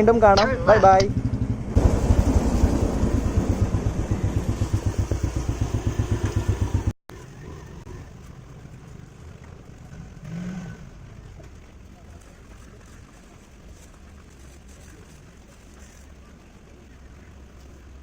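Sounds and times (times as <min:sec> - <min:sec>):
engine puttering: 0:00.0 - 0:12.9
faint outdoor background: 0:00.0 - 0:18.0.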